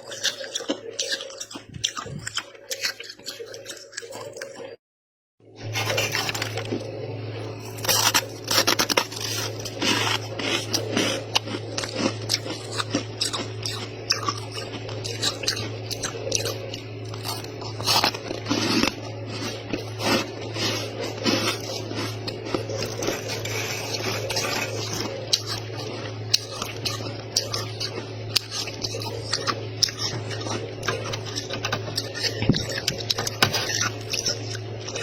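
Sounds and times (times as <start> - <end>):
steady low hum: 0.0 - 4.8, 5.4 - 35.0
frost being crunched: 7.6 - 12.5.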